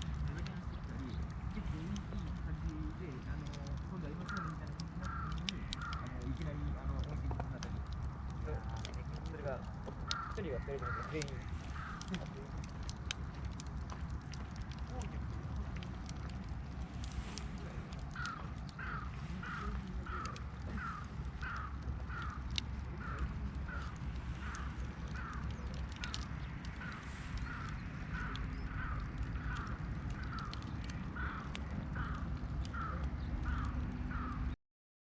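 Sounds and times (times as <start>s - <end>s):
faint clicks: 0.0s - 34.5s
steady low rumble: 0.0s - 34.6s
bird calling: 4.1s - 7.9s, 10.0s - 13.7s, 14.5s - 34.6s.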